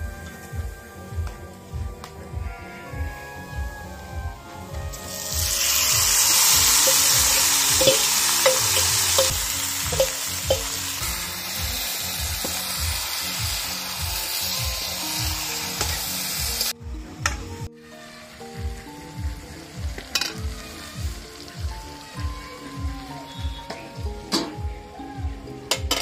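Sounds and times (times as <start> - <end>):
meat frying in hot oil: 4.9 - 16.8
metal spatula clinking on pan: 7.8 - 10.8.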